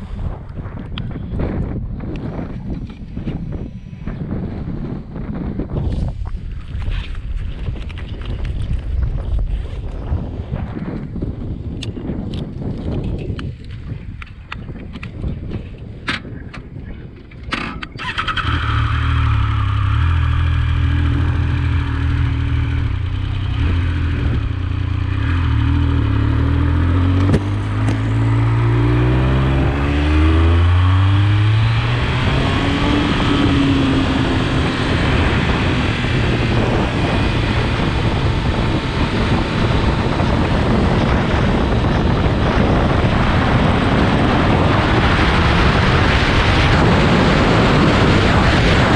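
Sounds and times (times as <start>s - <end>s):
wind noise on microphone: 0.0s - 48.9s
motorcycle engine: 17.4s - 48.9s.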